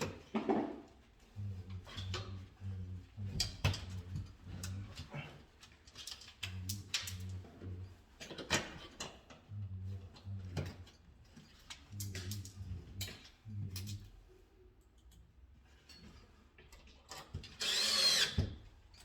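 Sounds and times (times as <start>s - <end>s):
pulsing low hum: 1.3s - 5.2s, 9.5s - 11.2s, 11.8s - 14.5s.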